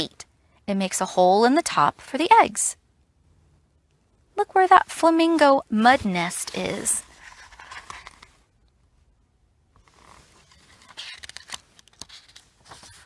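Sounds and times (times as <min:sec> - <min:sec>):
book pages turning: 0:06.0 - 0:08.5, 0:09.8 - 0:13.0.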